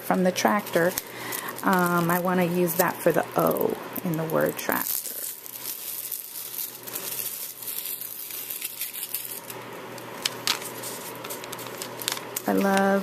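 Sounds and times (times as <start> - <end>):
paper crinkling and rustling: 4.0 - 13.0.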